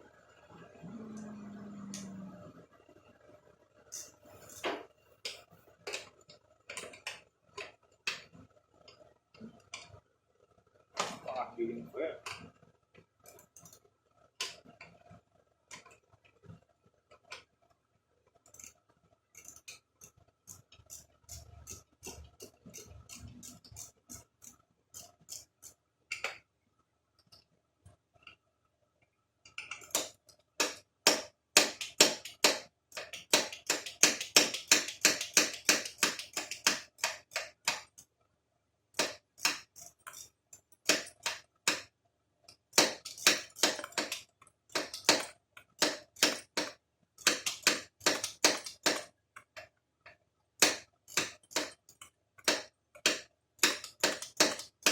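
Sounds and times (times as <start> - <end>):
hand ratchet clicking: 29.7 - 37.9
tool clicks and clinks: 42.8 - 49.5.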